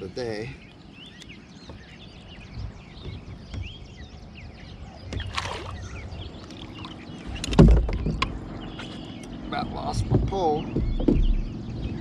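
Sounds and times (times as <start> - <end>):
birds chirping: 0.0 - 12.0
water splashing: 5.0 - 8.2
knocking on kayak: 7.5 - 8.3, 9.9 - 11.6.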